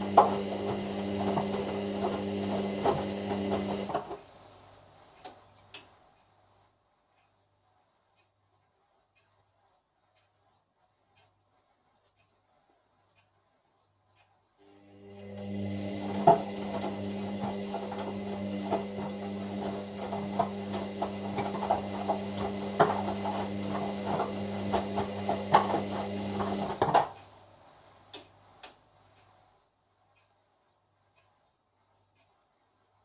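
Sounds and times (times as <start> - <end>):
washing machine motor humming: 0.0 - 4.3, 14.7 - 27.2.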